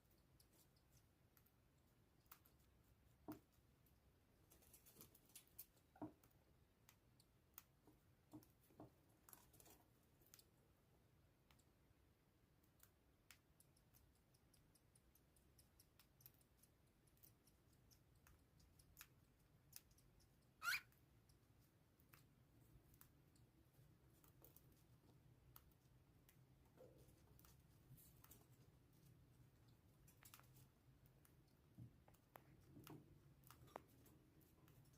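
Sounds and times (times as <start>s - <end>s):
birds pecking and cracking seed: 0.2s - 34.9s
bird chirp: 19.8s - 21.0s.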